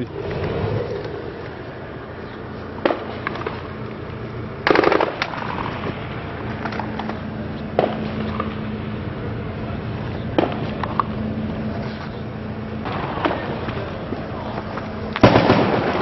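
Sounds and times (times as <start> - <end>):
automatic gunfire burst: 4.6 - 5.3, 15.2 - 16.0
gunshots: 4.6 - 5.4, 15.2 - 16.0.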